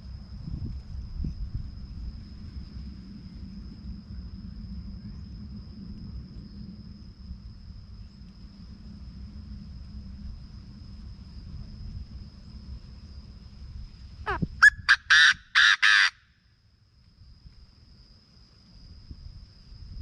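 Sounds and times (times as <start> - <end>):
wind rumble on microphone: 0.0 - 15.6, 16.6 - 20.0
high-pitched insect drone: 0.0 - 20.0.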